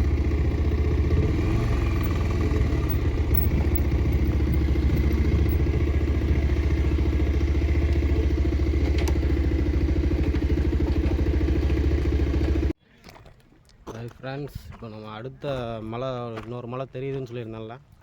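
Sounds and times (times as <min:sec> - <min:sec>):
motorcycle engine idling: 0:00.0 - 0:12.7.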